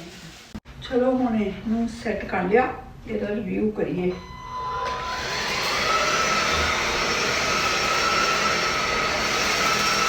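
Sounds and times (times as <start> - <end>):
vacuum cleaner motor whining: 4.6 - 10.0.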